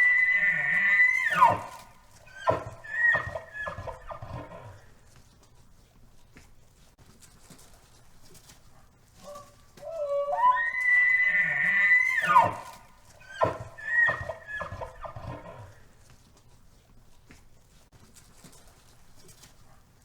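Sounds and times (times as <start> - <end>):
animal calls: 0.0 - 4.9, 9.2 - 15.8.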